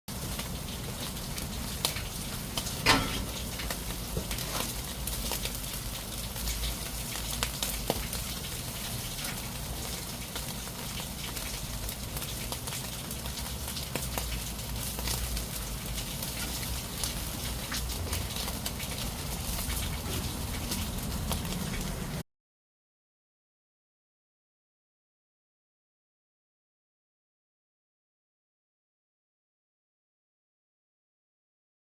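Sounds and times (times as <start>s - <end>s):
crackles and pops: 0.1s - 22.0s
fish sizzling on a grill: 0.1s - 22.2s.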